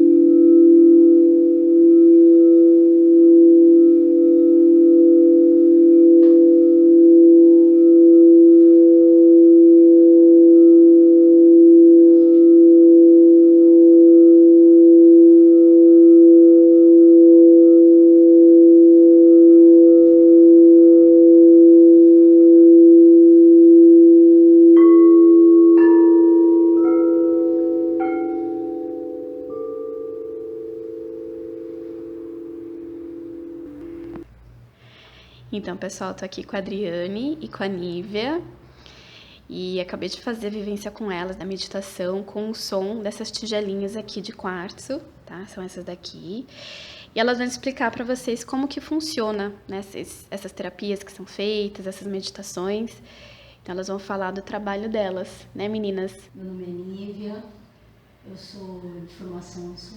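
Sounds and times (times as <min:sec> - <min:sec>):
singing bowls struck ringing: 0:00.0 - 0:23.2, 0:24.0 - 0:33.8
singing bowls humming: 0:00.0 - 0:34.3.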